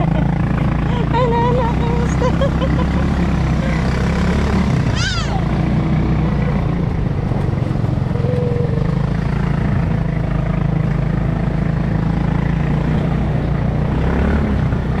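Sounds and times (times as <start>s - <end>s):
atv engine droning: 0.0s - 15.0s.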